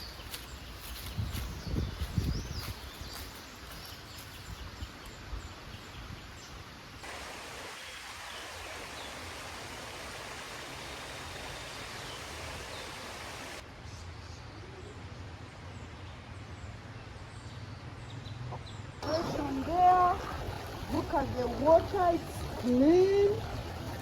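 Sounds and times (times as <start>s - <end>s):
river water rushing: 7.0s - 13.6s, 19.0s - 24.0s.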